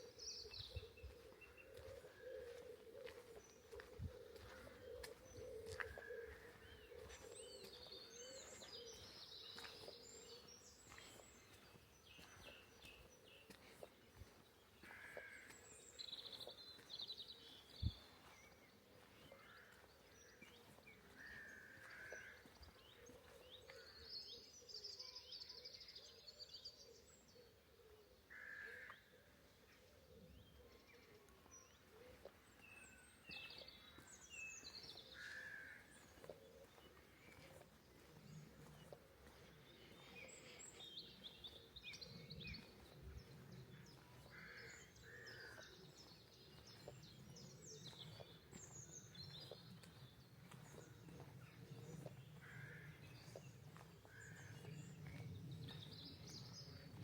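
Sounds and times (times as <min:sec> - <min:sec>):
faint songbirds chirping: 0:00.0 - 0:57.0.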